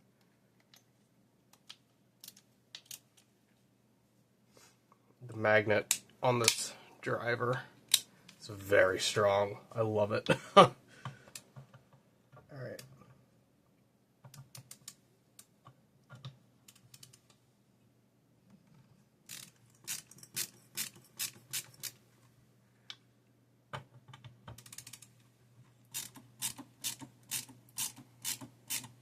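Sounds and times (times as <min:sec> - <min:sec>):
screwdriver clicking on metal screws: 0:19.3 - 0:22.0, 0:25.9 - 0:29.0.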